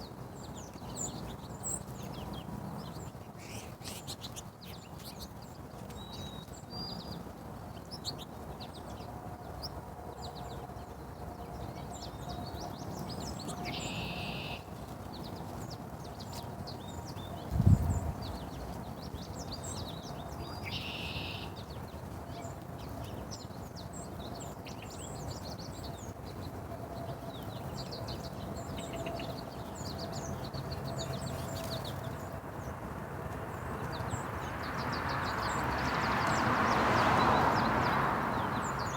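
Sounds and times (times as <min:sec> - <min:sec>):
birds chirping: 0:10.2 - 0:38.9.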